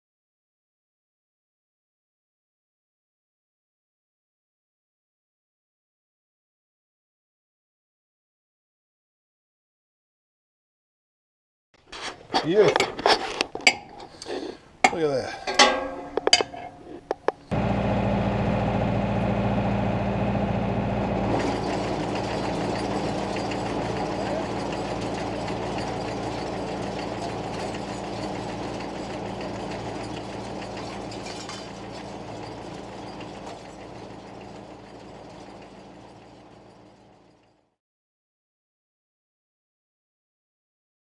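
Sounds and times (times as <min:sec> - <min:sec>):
engine running steadily: 0:17.4 - 0:37.4.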